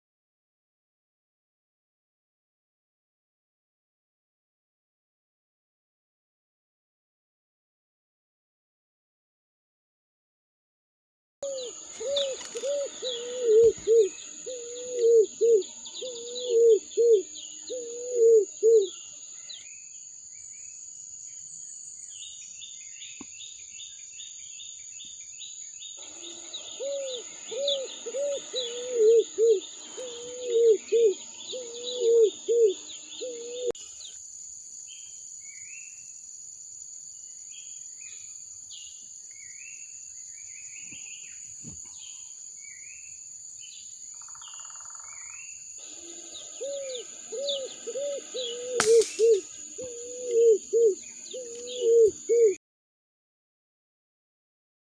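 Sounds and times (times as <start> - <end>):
bird's loud low repeated notes: 11.4 - 20.7, 26.0 - 34.0, 44.2 - 52.6
small birds chirping: 11.4 - 36.2, 37.2 - 52.6.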